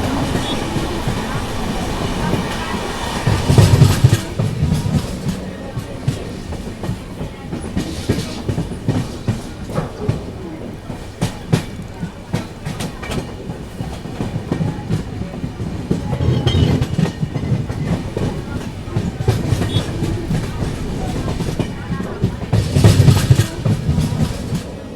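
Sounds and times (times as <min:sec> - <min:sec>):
train rumble: 0:00.0 - 0:24.9
train wheels clattering over rail joints: 0:00.0 - 0:24.9.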